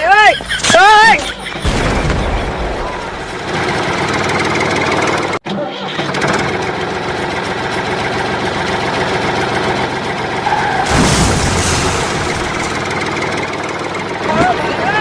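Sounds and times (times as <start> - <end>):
engine chugging steadily: 2.4 - 15.0.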